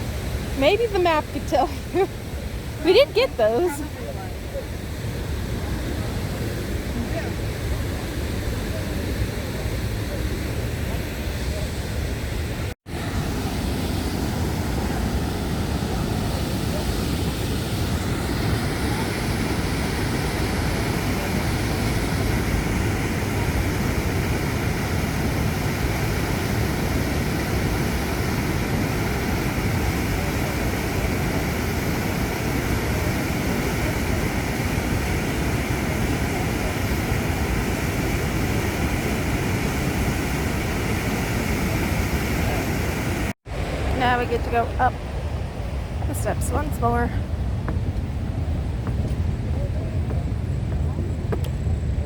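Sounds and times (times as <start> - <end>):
waterfall rushing: 5.0 - 44.2.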